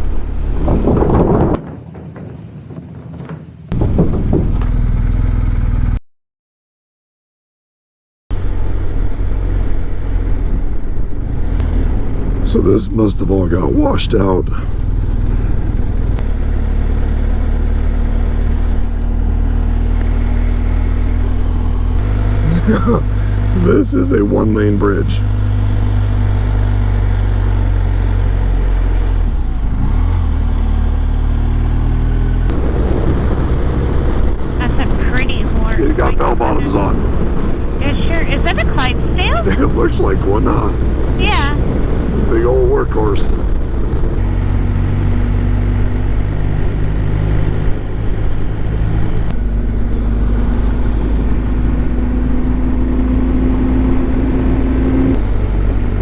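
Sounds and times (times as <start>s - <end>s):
wind noise: 0.0s - 4.7s
motorcycle engine running: 1.6s - 6.0s, 13.4s - 29.6s.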